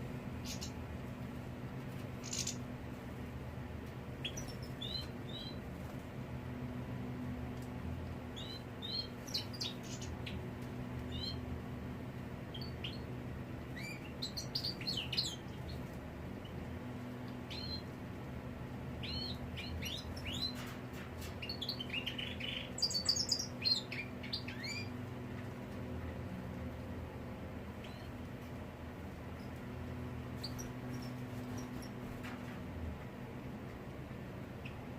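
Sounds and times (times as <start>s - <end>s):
faint low hum: 0.0s - 34.9s
goldfinch chirping: 0.4s - 0.8s, 2.2s - 2.6s, 4.2s - 5.6s, 8.4s - 10.4s, 13.8s - 15.4s, 17.5s - 17.8s, 19.0s - 20.6s, 21.4s - 24.9s.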